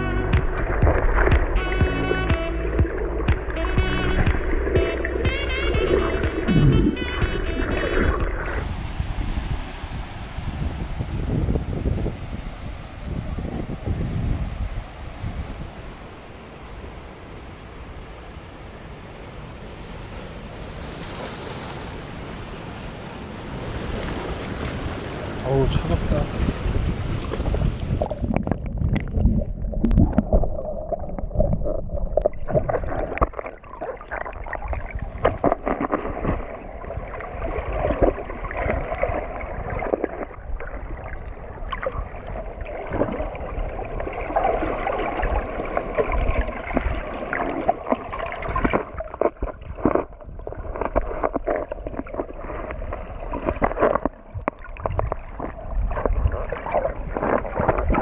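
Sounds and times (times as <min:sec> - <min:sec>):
muffled water sloshing and gurgling: 0:00.0 - 0:11.0, 0:23.7 - 0:58.0.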